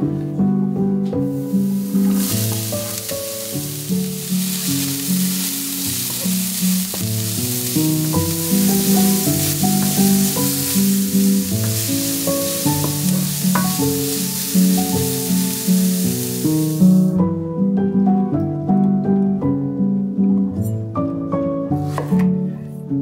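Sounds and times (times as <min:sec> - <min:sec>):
plucked-string background music: 0:00.0 - 0:23.0
vegetables sizzling in a pan: 0:01.3 - 0:17.2
wooden spatula stirring: 0:01.4 - 0:17.1.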